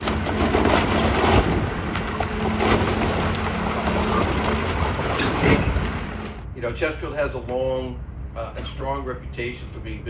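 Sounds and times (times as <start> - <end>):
heavy machinery engine hum: 0.0 - 6.6.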